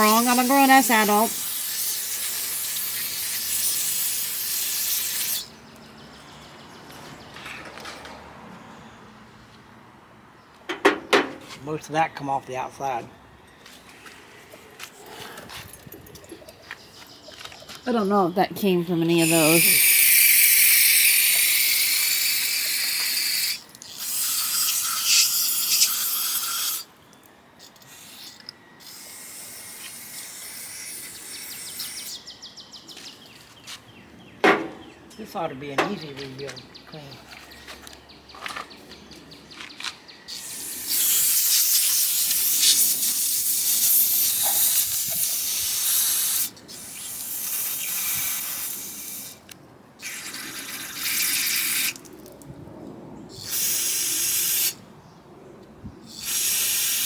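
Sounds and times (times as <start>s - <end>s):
aerosol spray hissing: 0.0s - 5.5s, 19.2s - 26.8s, 40.4s - 49.4s, 53.4s - 54.8s, 56.1s - 57.0s.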